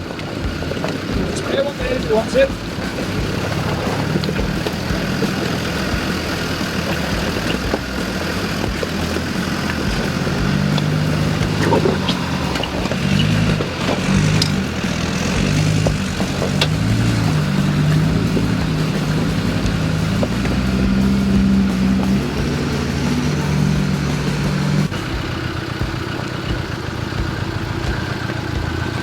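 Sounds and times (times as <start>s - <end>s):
off-road vehicle engine revving: 0.0s - 29.0s.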